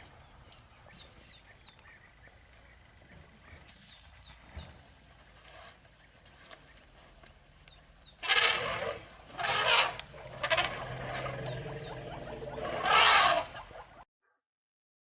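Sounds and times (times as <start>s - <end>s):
elephant trumpeting: 8.2s - 14.0s
faint bird chirps: 10.2s - 14.0s.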